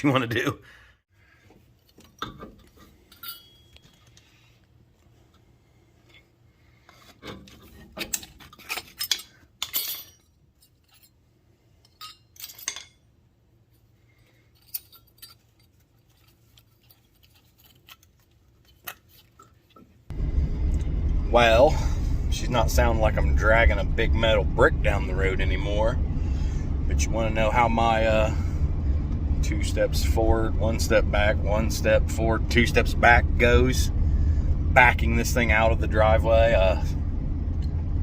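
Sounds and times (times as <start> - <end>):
metallic clinks and knocks: 1.9 - 4.2, 7.2 - 11.2, 11.8 - 13.1, 14.4 - 19.9.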